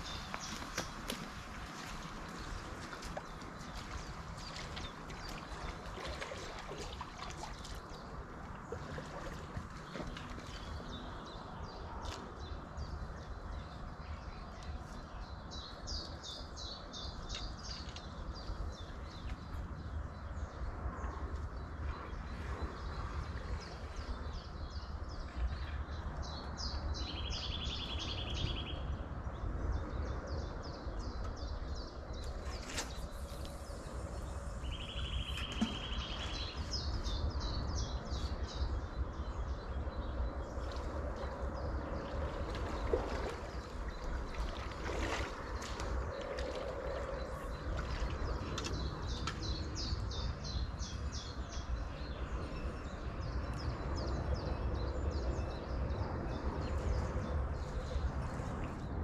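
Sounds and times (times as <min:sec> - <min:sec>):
songbirds singing: 0:00.0 - 0:59.0
steady low rumble: 0:00.0 - 0:59.0.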